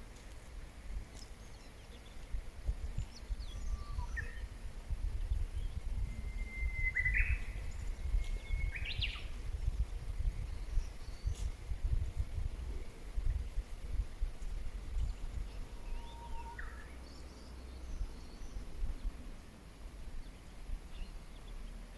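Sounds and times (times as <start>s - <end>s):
bird song whistle with flourish: 3.0s - 4.5s, 5.5s - 11.4s, 15.5s - 18.6s
faint high bird chirps: 3.0s - 4.5s, 5.2s - 11.6s, 15.0s - 19.1s.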